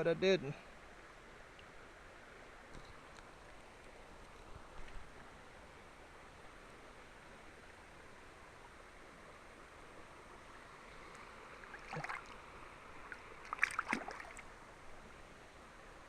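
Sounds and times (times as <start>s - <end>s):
river water flowing: 0.5s - 16.0s
short splashing or knocking: 11.7s - 12.3s, 13.5s - 14.4s.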